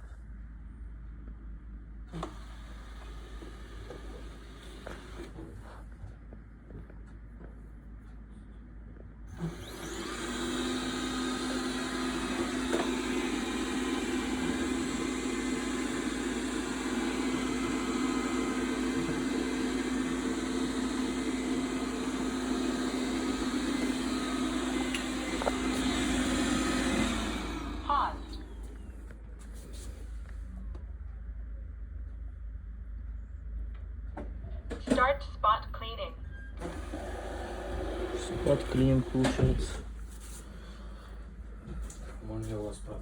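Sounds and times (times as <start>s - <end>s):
robot vacuum humming: 2.1s - 5.4s, 9.3s - 29.8s, 36.6s - 39.9s.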